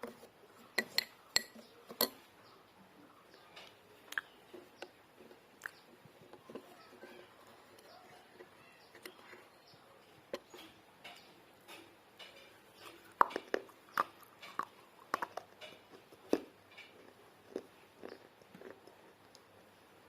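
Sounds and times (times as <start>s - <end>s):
crunching baked clay: 12.2s - 20.0s.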